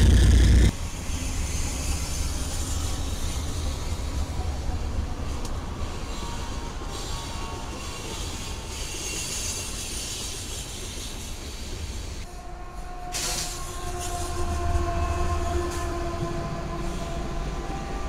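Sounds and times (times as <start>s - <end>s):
diesel locomotives passing: 0.0s - 18.0s
freight train wheels rumbling: 0.0s - 18.0s
train air horn chord: 12.3s - 18.0s.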